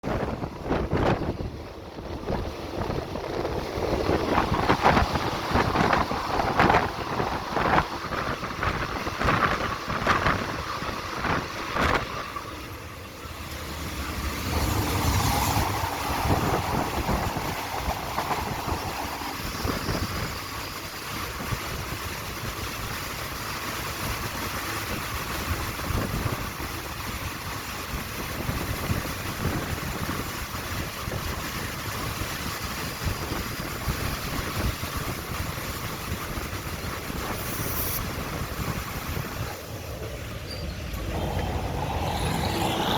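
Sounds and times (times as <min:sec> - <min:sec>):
wind on microphone: 0:00.0 - 0:12.4, 0:14.4 - 0:23.0, 0:24.1 - 0:42.9
train rumbling along track: 0:00.0 - 0:42.9.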